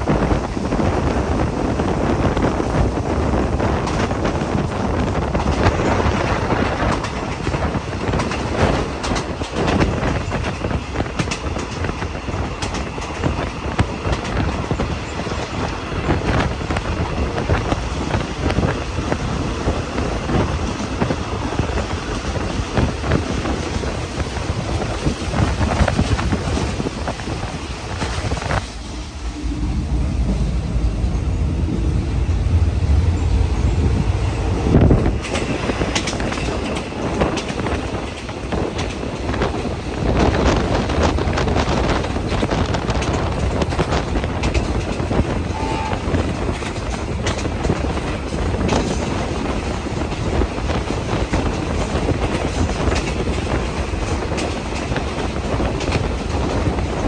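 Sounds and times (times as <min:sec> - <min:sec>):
train rumbling: 0:00.0 - 0:57.0
wheels clacking over rail joints: 0:03.2 - 0:28.8, 0:32.5 - 0:57.0.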